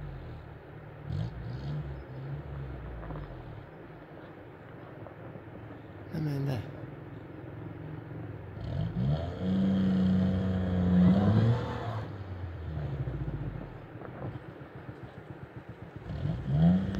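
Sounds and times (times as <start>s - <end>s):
car engine revving: 8.5s - 16.9s.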